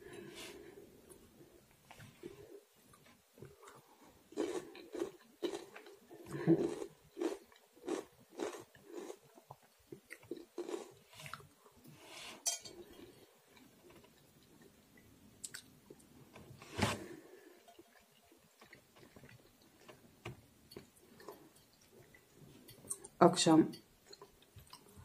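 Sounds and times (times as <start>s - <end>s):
chewing food: 1.9s - 11.9s, 12.8s - 16.2s, 17.1s - 23.2s, 24.0s - 25.0s
fork scraping and clinking on plate: 12.3s - 13.2s.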